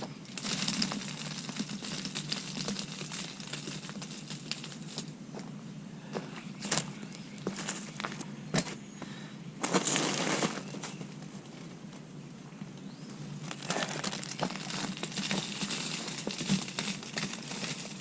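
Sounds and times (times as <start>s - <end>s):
mulch rustling and crinkling: 13.4s - 18.0s.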